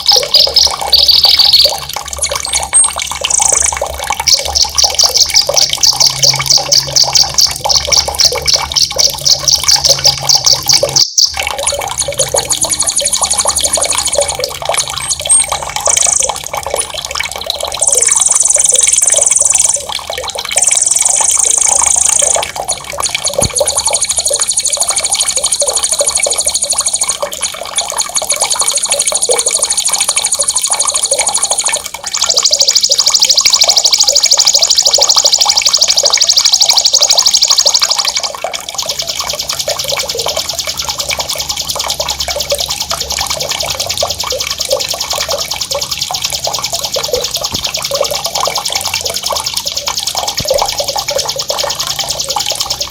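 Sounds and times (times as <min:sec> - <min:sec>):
songbird singing: 0:00.0 - 0:01.8, 0:02.7 - 0:03.8, 0:12.3 - 0:16.4, 0:17.8 - 0:19.9, 0:20.6 - 0:22.5, 0:28.2 - 0:38.3
trickle of running water: 0:00.0 - 0:52.9.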